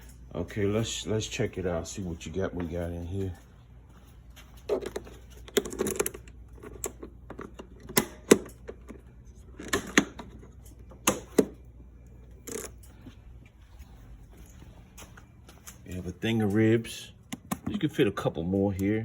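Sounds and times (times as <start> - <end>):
compartment latch clicks and knocks: 4.8 - 9.0, 11.0 - 11.6.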